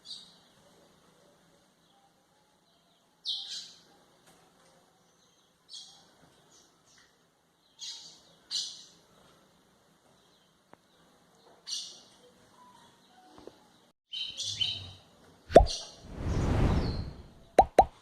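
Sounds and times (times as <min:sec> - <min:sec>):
bird singing high-pitched phrases: 0:14.1 - 0:15.0.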